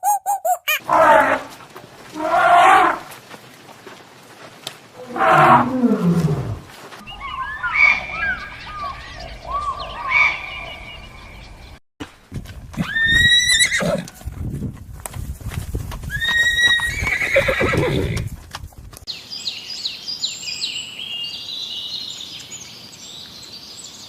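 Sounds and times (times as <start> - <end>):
short high chirps: 0.0 - 0.8
horse whinnying: 12.8 - 14.1, 16.1 - 18.3.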